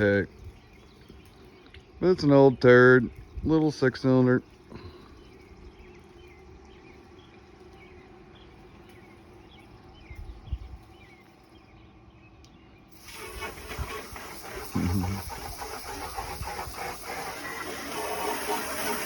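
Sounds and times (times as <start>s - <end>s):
birds chirping: 0.0s - 19.0s
hiss: 12.9s - 19.0s.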